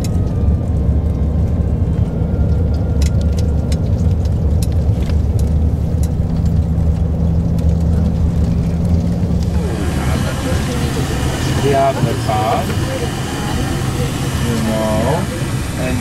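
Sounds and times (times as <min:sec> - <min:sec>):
vehicle engine rumble: 0:00.0 - 0:16.0
small clicks and rattles: 0:02.5 - 0:09.5.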